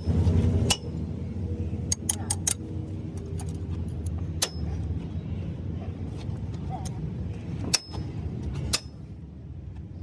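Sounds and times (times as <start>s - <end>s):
steady low hum: 0.0s - 10.0s
metallic clinks of tools: 1.9s - 2.6s.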